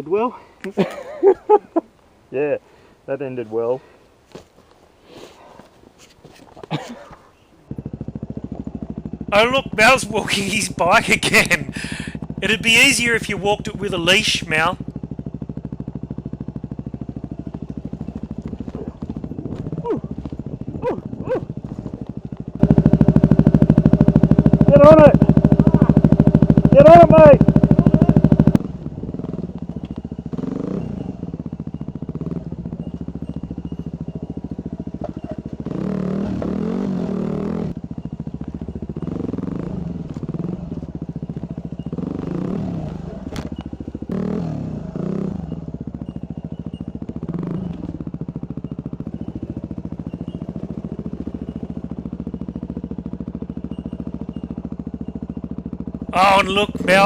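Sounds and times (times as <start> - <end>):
dirt bike engine revving: 7.7 - 57.0.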